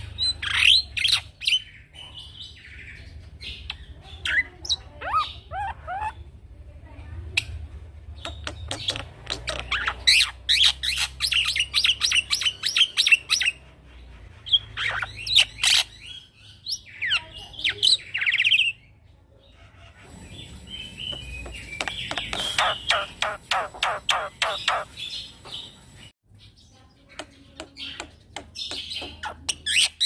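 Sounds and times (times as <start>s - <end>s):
myna chattering and whistling: 3.5s - 6.4s, 20.0s - 25.0s, 27.0s - 30.0s.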